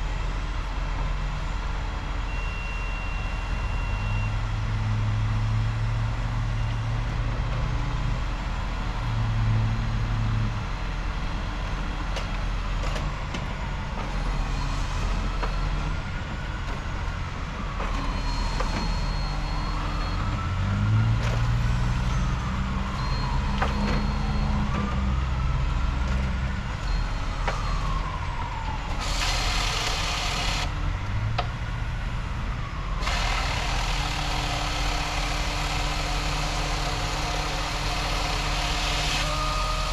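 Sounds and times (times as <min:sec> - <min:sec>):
crane engine running: 0:21.7 - 0:39.9.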